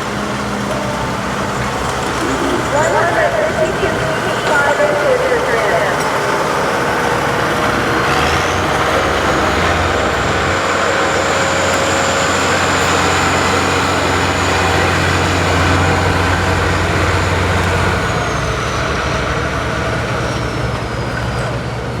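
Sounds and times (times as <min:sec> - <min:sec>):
tractor engine under load: 0:00.0 - 0:22.0
high steady whine: 0:01.0 - 0:18.1.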